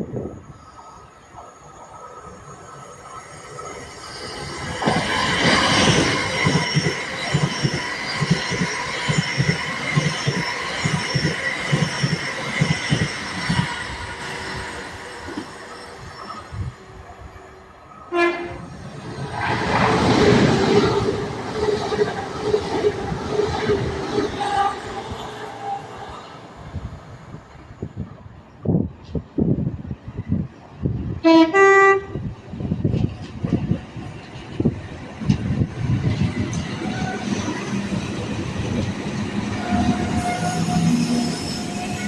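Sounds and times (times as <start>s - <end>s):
train wheels clicking over rails: 4.4s - 15.5s.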